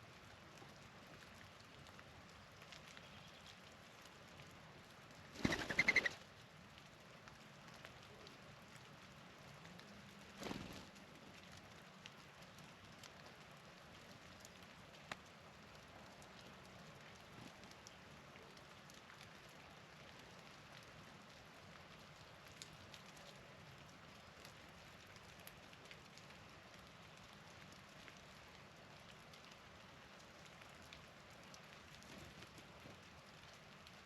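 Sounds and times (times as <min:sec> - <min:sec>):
dove wingbeats taking off: 0:05.4 - 0:06.2.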